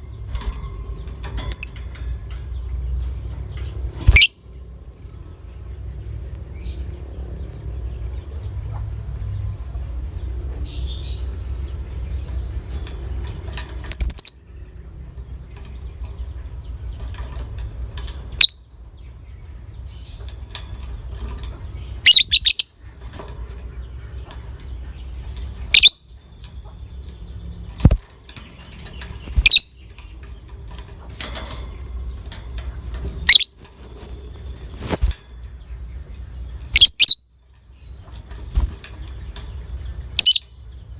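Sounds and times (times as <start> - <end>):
lovebird shrill chirps: 13.9 - 14.4, 21.8 - 22.9, 25.7 - 26.1, 29.2 - 29.8, 33.2 - 33.6, 36.7 - 37.3, 40.1 - 40.5.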